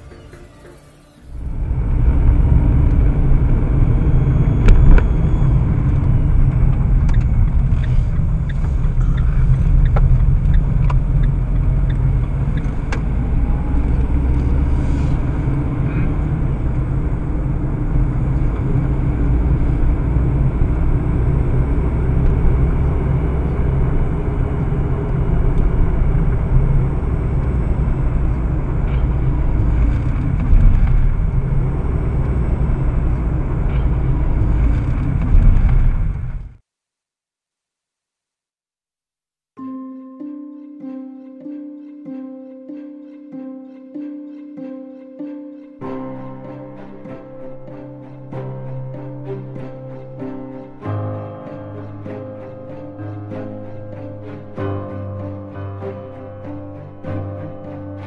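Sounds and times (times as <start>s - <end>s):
car engine and road noise: 0.0s - 36.7s, 45.8s - 58.0s.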